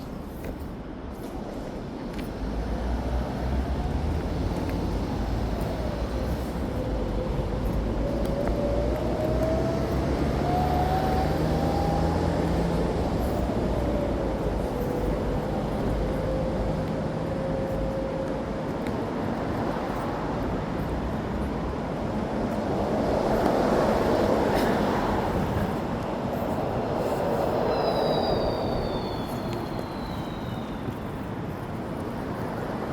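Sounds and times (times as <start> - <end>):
rumble of passing vehicles: 1.4 - 27.7
brief high squeal: 27.7 - 31.0.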